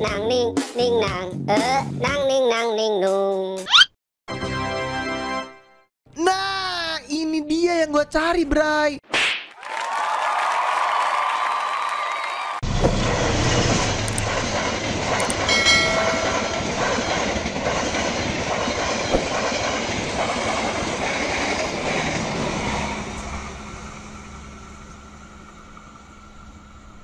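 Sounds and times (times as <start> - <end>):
passenger train passing: 12.6 - 27.0
wheels clattering on rails: 12.6 - 27.0.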